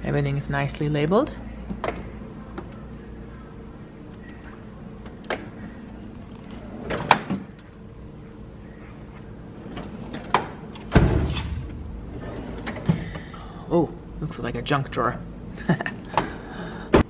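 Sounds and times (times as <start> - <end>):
steady low hum: 0.0 - 17.0
metal drawers sliding: 6.5 - 7.6, 9.6 - 13.2.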